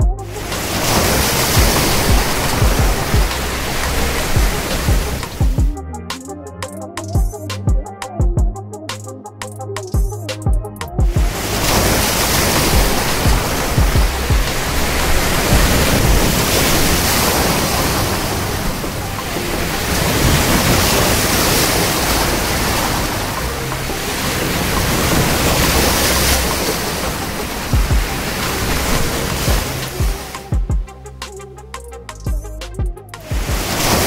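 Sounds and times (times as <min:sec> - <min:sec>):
waves breaking on shore: 0:00.4 - 0:05.6, 0:11.2 - 0:30.6, 0:33.4 - 0:34.0.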